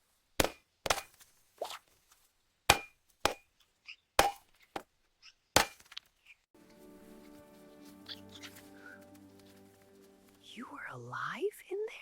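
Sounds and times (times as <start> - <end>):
music: 6.6 - 11.4.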